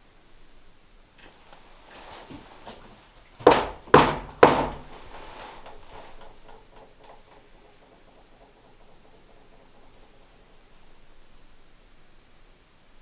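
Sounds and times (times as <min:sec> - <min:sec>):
knocks on a wall: 0:03.4 - 0:05.1.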